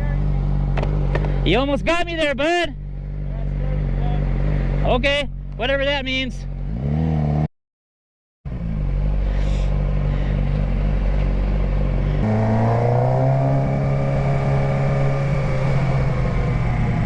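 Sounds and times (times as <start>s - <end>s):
motorcycle engine running: 0.0s - 7.4s, 8.5s - 17.0s.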